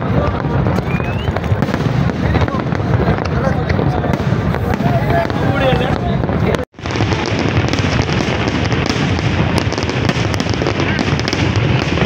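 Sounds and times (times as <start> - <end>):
fireworks crackles and pops: 0.0 - 12.0
fireworks shell bursts rumbling: 0.0 - 12.0.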